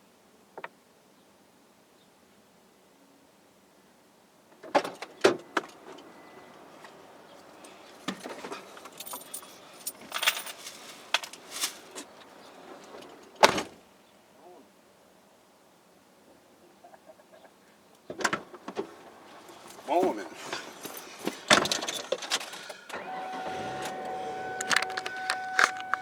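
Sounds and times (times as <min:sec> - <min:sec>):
keys jangling: 0:08.2 - 0:12.0, 0:20.6 - 0:26.0
clicks and handling knocks: 0:23.8 - 0:26.0.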